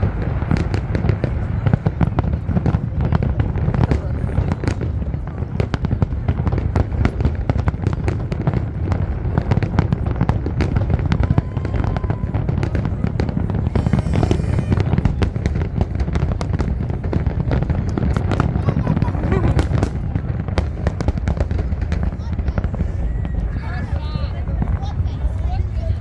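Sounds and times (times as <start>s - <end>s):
fireworks bangs: 0.0s - 25.8s
fireworks hiss: 13.2s - 15.6s.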